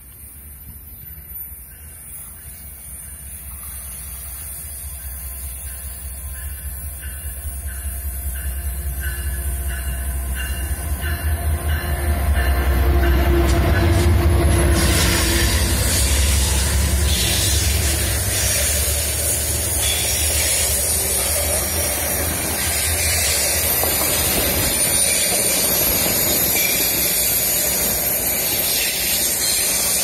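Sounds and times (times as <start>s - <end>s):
wheels on rails: 0.0s - 30.0s
diesel locomotive rumble: 3.4s - 26.5s.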